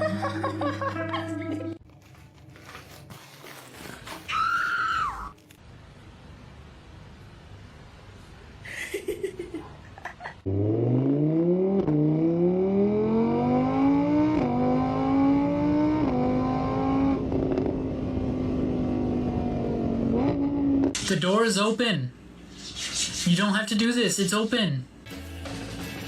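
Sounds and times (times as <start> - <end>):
vehicle engine starting and accelerating: 10.4 - 21.0.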